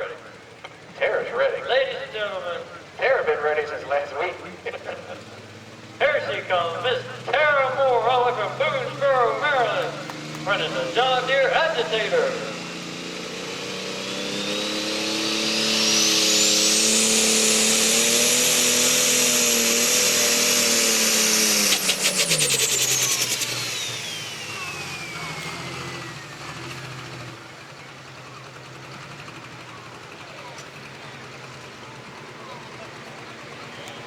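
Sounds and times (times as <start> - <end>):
diesel tractor engine under load: 0.0 - 34.0
turbo whine: 0.0 - 34.0
rapid fluttering chatter: 27.4 - 34.0.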